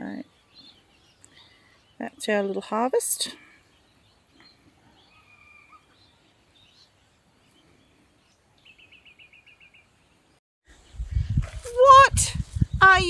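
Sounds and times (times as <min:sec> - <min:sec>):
faint birdsong: 0:00.0 - 0:11.5.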